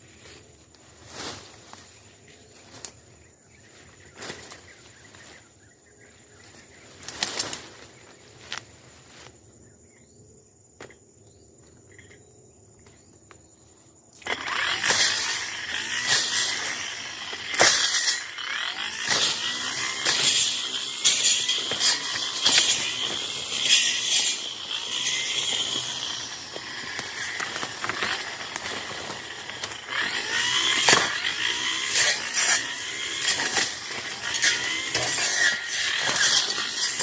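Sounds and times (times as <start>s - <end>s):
rustling in dry brush: 0.0s - 2.9s
high insect tone: 0.0s - 37.0s
brush cutter running: 14.2s - 37.0s.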